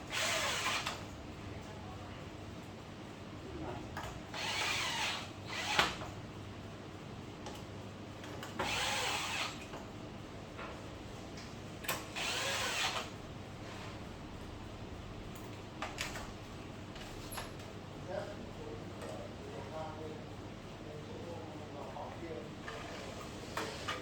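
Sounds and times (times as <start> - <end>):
electric screwdriver running: 0.1 - 1.0, 4.4 - 6.0, 8.6 - 9.6, 12.2 - 13.1.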